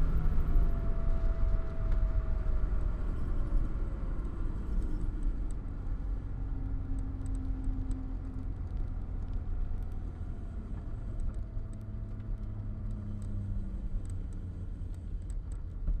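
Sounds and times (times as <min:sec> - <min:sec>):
light scattered ticks: 0:06.8 - 0:16.0.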